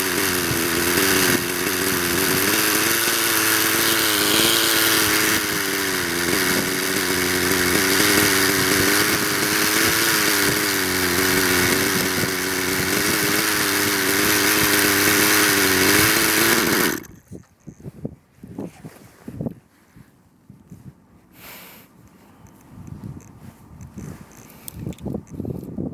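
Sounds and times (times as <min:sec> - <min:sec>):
model helicopter engine buzzing: 0:00.0 - 0:17.1.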